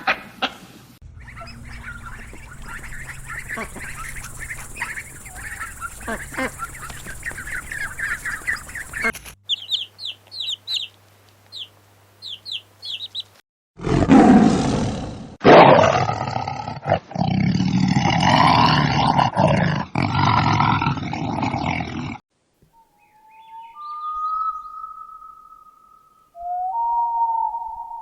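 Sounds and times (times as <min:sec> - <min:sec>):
low steady hum: 0:01.0 - 0:09.3.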